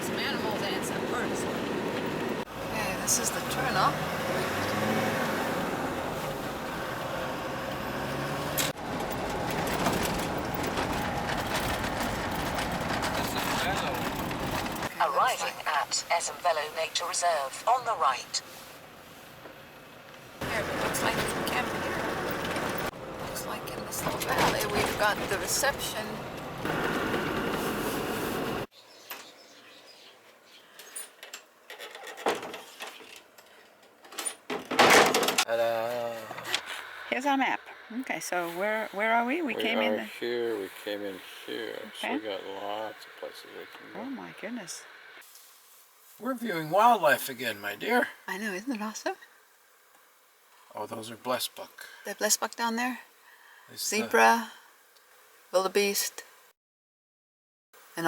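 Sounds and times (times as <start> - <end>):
car engine running: 0.0 - 18.3, 19.2 - 28.7
road and wind noise: 0.0 - 39.6, 41.3 - 45.2.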